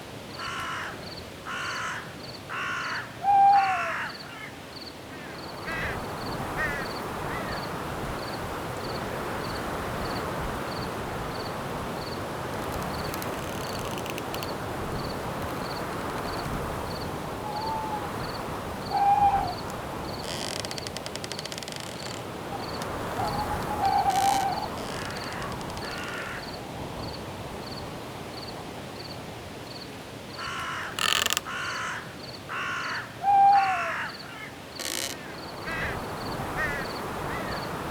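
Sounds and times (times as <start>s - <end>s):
wind through trees: 0.0s - 37.9s
cricket chirping: 0.3s - 33.0s, 33.6s - 37.9s
crow cawing: 0.4s - 6.0s, 6.6s - 7.6s, 17.4s - 20.6s, 23.0s - 26.6s, 30.4s - 37.6s
insect trill: 4.8s - 26.6s, 34.1s - 37.0s.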